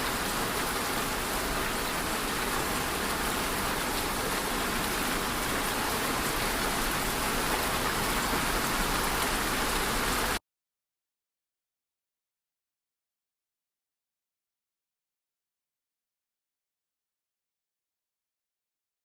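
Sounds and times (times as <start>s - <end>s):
steady rain falling: 0.0s - 10.4s.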